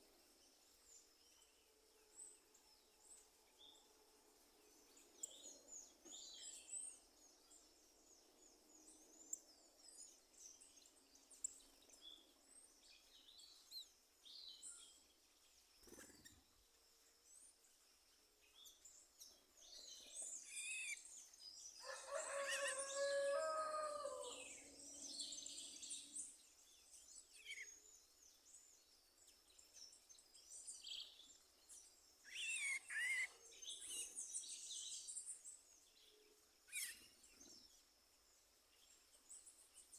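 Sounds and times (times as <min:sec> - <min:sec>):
birds chirping and singing: 0:19.3 - 0:28.0, 0:30.6 - 0:37.7.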